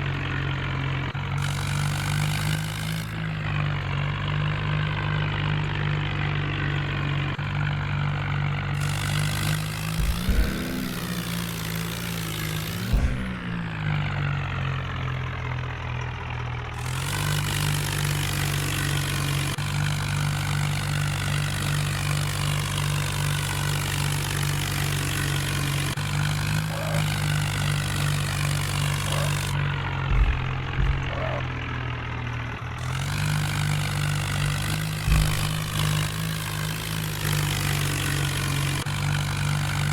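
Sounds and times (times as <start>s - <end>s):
diesel tractor engine running: 0.0s - 39.9s
short thumps: 9.4s - 13.8s, 26.5s - 36.3s.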